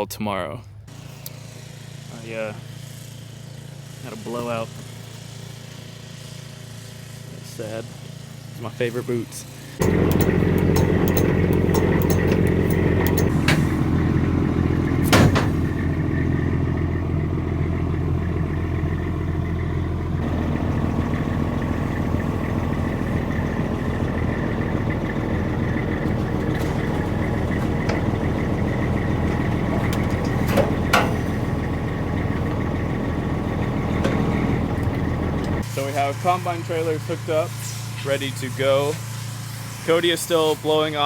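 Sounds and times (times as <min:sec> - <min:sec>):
diesel engine idling: 0:09.6 - 0:39.8.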